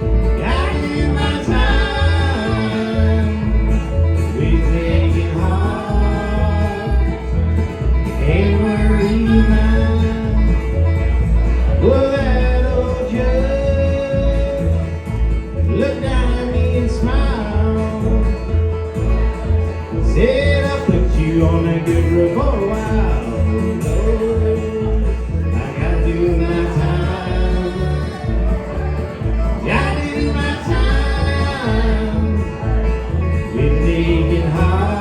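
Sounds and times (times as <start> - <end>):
acoustic guitar: 0.0 - 35.0
banjo: 0.0 - 35.0
pulsing bass line: 0.0 - 35.0.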